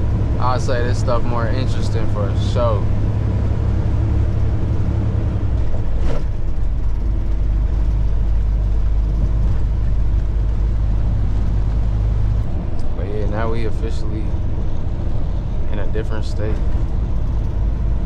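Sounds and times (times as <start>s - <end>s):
truck engine and road drone: 0.0s - 18.0s.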